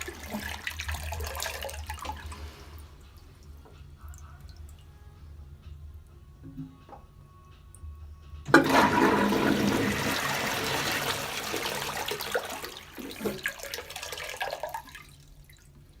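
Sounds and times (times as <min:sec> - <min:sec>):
toilet flushing: 0:00.0 - 0:03.4, 0:08.5 - 0:16.0.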